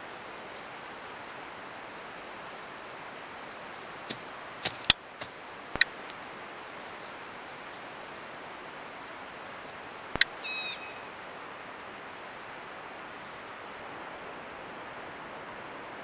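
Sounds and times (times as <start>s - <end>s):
steady hiss: 13.8s - 16.0s.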